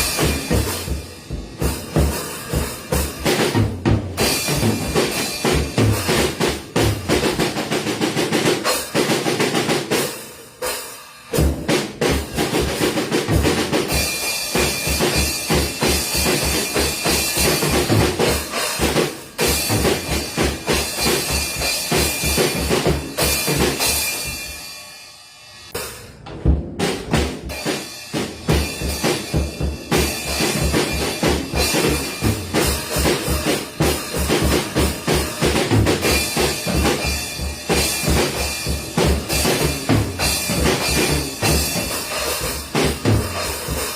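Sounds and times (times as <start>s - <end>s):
bass drum beat: 0.0s - 7.7s, 26.0s - 43.9s
washing cymbals: 0.0s - 11.4s, 27.2s - 43.9s.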